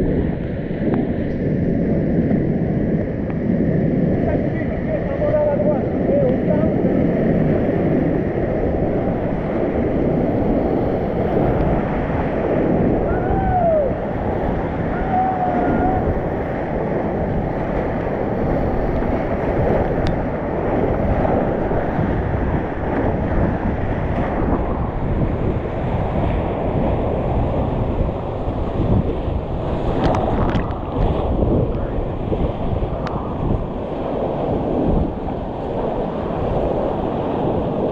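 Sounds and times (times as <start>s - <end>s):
wind buffeting microphone: 0.0s - 37.9s
whitewater rapids rushing: 9.0s - 21.9s.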